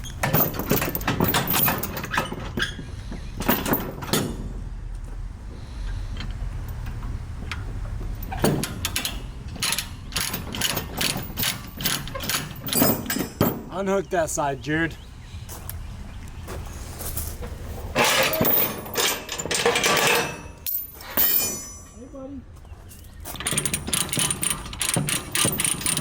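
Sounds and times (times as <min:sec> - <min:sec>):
metal ratcheting and clanking: 0:00.0 - 0:02.8, 0:03.4 - 0:04.6, 0:05.9 - 0:13.7, 0:17.9 - 0:22.0, 0:23.0 - 0:26.0
low engine hum: 0:02.7 - 0:18.9.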